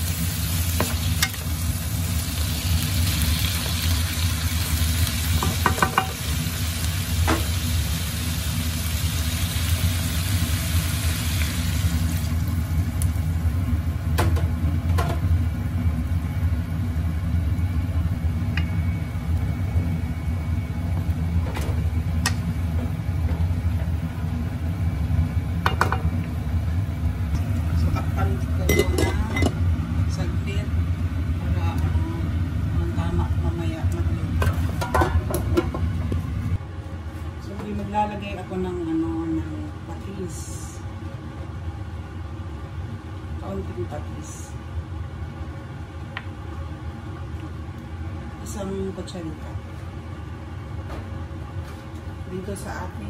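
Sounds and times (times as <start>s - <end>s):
food sizzling in a frying pan: 0.0s - 16.9s, 27.4s - 35.8s
steady low hum: 0.0s - 53.0s
wooden spoon knocking on pan: 5.4s - 6.2s.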